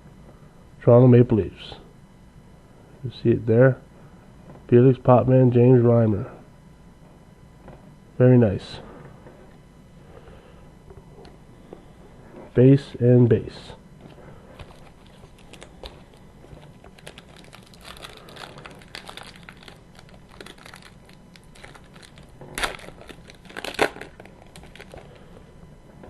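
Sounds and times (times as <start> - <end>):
cards clicking and rustling: 14.6 - 25.2
wrapper crinkling and tearing: 14.6 - 25.3.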